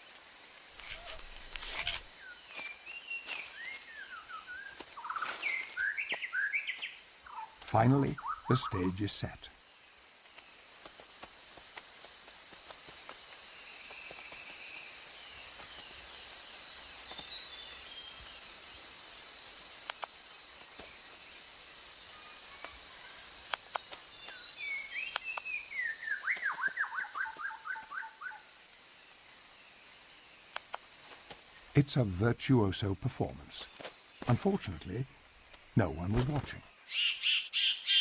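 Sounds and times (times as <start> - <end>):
faint chirps: 0.0 - 11.6, 12.3 - 28.6
high insect drone: 0.0 - 38.0
bird call with falling notes: 2.6 - 8.9, 24.2 - 28.4
sharp clicks: 19.8 - 20.2, 30.5 - 30.9.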